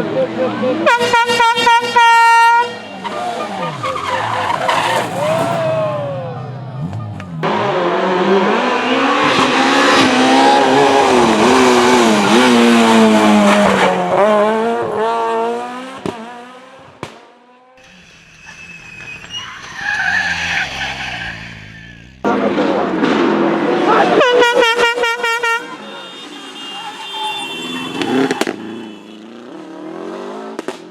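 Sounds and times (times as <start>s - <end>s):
rally car engine passing: 3.0s - 24.2s.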